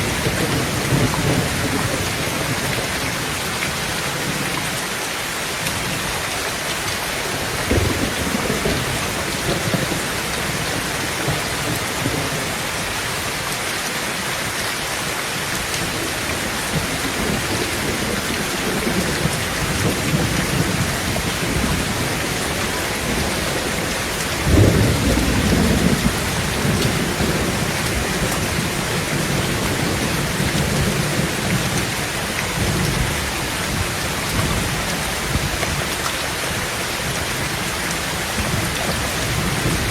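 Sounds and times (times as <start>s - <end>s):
thunder rumbling: 0.0s - 4.5s, 6.9s - 12.7s, 15.8s - 36.0s
heavy rain on a tin roof: 0.0s - 39.9s.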